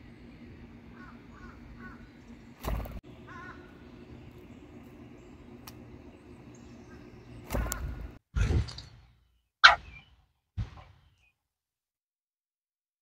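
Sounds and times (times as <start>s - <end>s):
faint steady hum: 0.0s - 8.2s
harsh bird cawing: 0.9s - 4.1s, 6.8s - 8.1s, 9.6s - 10.1s.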